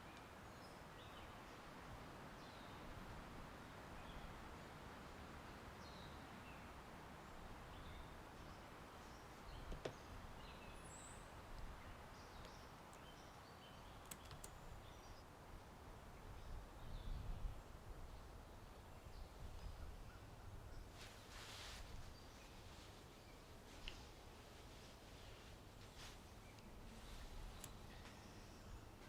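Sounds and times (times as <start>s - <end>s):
rustling leaves: 0.0s - 29.0s
steady wind: 0.0s - 29.0s
sharp clicks: 14.0s - 14.6s
faint bird chirps: 16.2s - 29.0s.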